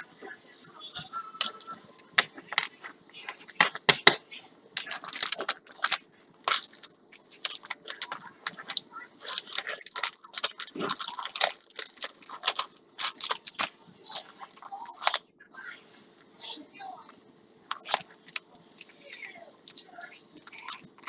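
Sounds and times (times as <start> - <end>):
packaging crinkling and tearing: 4.8 - 15.2, 17.7 - 19.0, 19.6 - 21.0.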